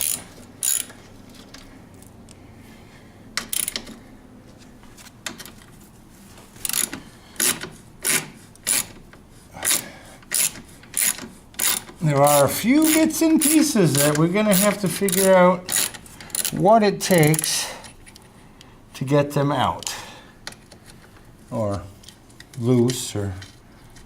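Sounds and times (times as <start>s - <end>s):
hand tool clicking rasps: 0.0s - 1.0s, 6.7s - 8.9s, 9.6s - 17.5s.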